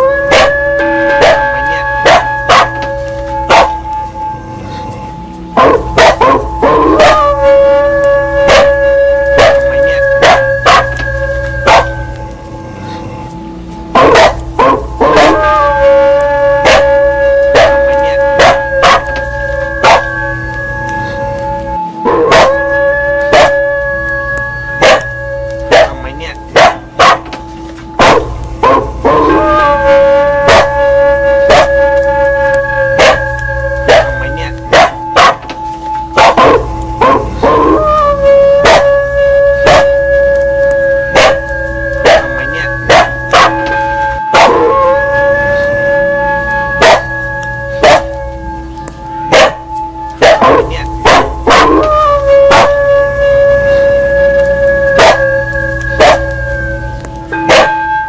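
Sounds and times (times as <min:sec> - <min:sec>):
dog howling: 0:00.0 - 0:58.0
temple bell clanging: 0:00.0 - 0:58.0
dog barking sharply: 0:09.4 - 0:11.0, 0:11.7 - 0:11.9, 0:26.6 - 0:27.3, 0:33.9 - 0:34.1, 0:42.9 - 0:43.6, 0:57.5 - 0:57.7.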